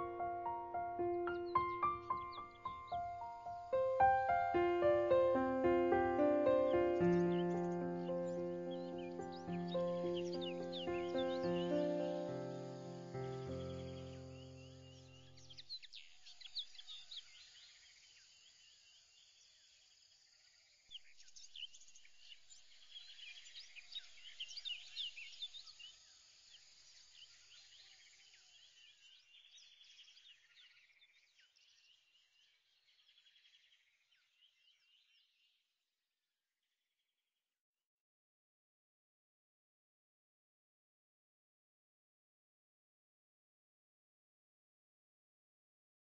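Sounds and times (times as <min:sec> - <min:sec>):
background music: 0:00.0 - 0:15.0
birds chirping: 0:00.0 - 0:17.4.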